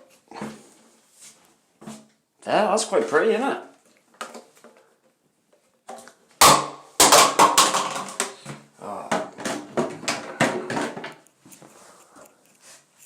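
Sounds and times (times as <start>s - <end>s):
pipe pieces knocking and clattering: 5.9s - 11.3s.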